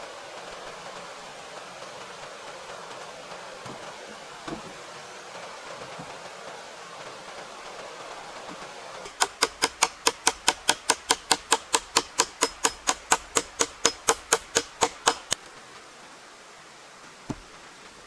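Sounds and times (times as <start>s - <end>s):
fast sharp taps: 9.1s - 15.4s.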